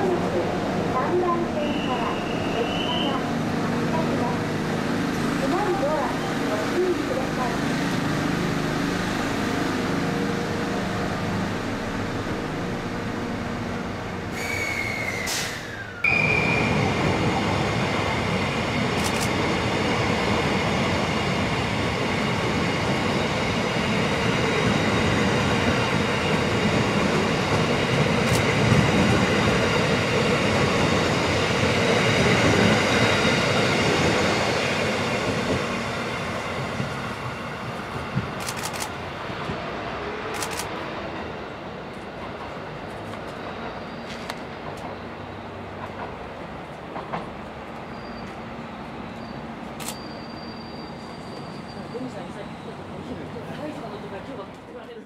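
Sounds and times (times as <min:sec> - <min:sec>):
train wheels rumbling on rails: 0:00.0 - 0:55.0
high wheel squeal: 0:01.6 - 0:03.2, 0:14.3 - 0:16.9, 0:43.7 - 0:44.3, 0:47.9 - 0:52.9.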